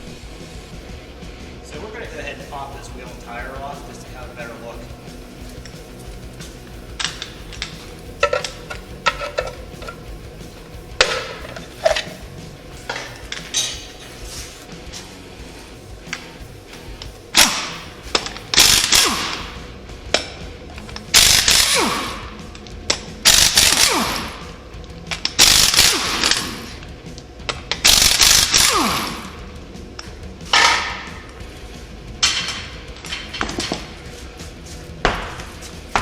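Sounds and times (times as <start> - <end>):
impact wrench rattling: 2.6 - 14.6, 16.1 - 31.5, 32.1 - 34.1
impact wrench whine spinning down: 15.9 - 31.4.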